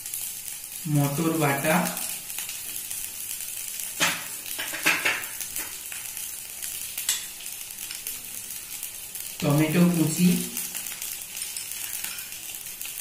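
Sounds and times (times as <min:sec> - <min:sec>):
vegetables sizzling in oil: 0:00.0 - 0:13.0
spatula scraping and knocking pan: 0:04.0 - 0:05.8.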